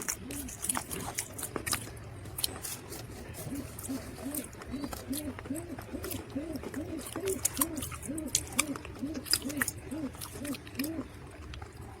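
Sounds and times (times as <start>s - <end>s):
low hooting calls: 0.0s - 12.0s.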